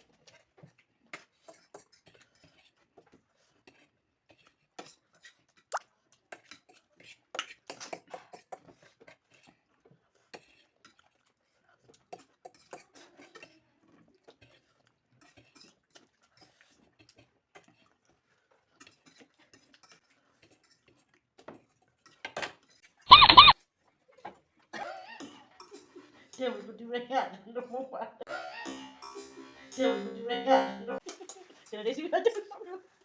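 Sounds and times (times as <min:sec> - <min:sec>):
chewing: 0:00.0 - 0:22.2
wavering high-pitched sound: 0:23.1 - 0:23.5.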